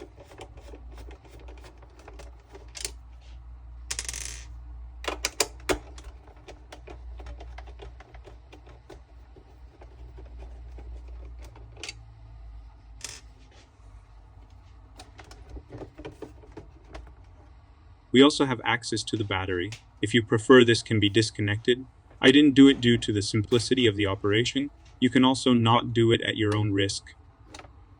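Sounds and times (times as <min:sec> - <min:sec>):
plastic parts clicking and rattling: 0:00.0 - 0:03.0, 0:05.0 - 0:12.0, 0:14.9 - 0:17.4
faint low hum: 0:00.0 - 0:27.9.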